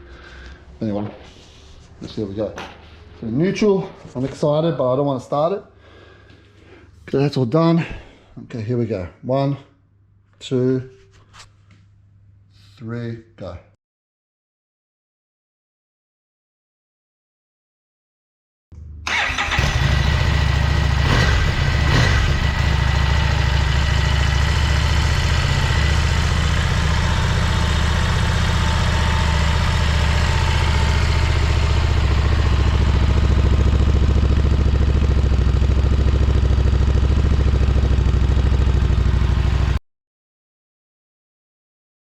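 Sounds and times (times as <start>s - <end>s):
motorcycle engine starting and idling: 19.0s - 39.8s.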